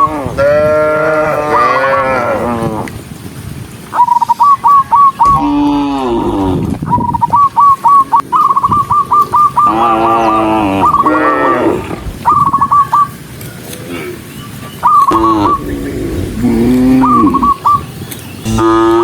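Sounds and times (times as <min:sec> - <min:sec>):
cattle mooing: 0:00.0 - 0:02.9, 0:09.7 - 0:12.0, 0:15.1 - 0:17.6, 0:18.4 - 0:19.0.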